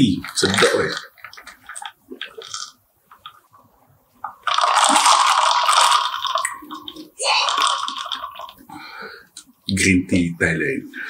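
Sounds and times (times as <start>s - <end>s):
straw churning frothy drink: 0.0s - 3.5s, 4.2s - 8.8s.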